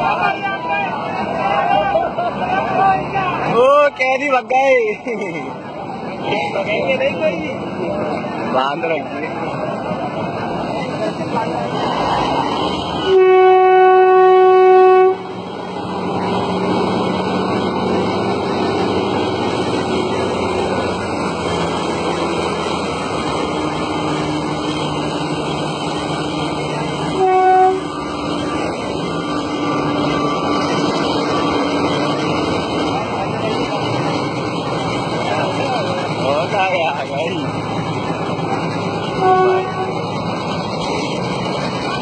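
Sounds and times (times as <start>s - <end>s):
engine and traffic noise: 0.0s - 42.0s
train horn blasts: 13.0s - 15.4s, 27.1s - 28.6s, 39.2s - 40.1s.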